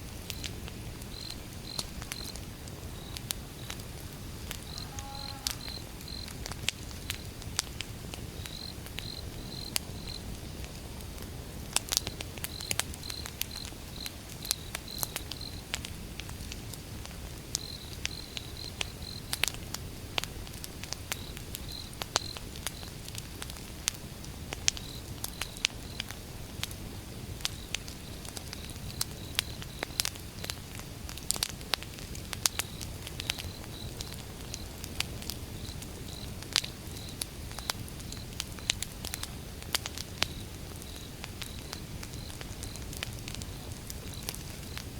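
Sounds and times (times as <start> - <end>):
fire low rumble: 0.0 - 44.9
logs crackling and popping: 0.0 - 44.9
insect chirping: 1.1 - 3.8, 4.6 - 6.4, 8.4 - 10.3, 40.3 - 44.9.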